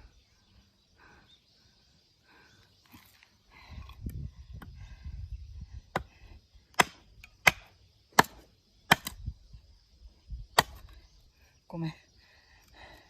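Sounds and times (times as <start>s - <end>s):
blade chopping into log: 6.7s - 9.2s, 10.6s - 10.9s.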